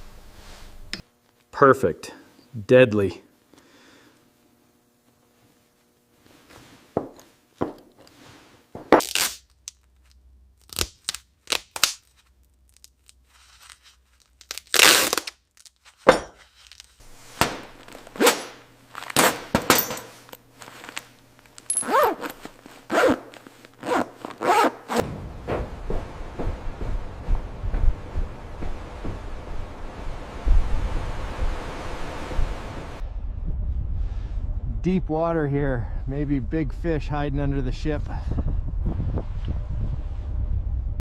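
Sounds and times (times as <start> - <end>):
gear scraping and ripping: 9.0 - 17.0
steady rushing noise: 25.0 - 35.4.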